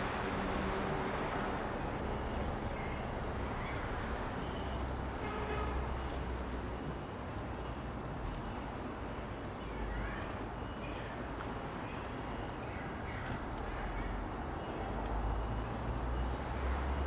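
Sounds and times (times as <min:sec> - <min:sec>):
songbirds chirping: 0:01.6 - 0:04.8.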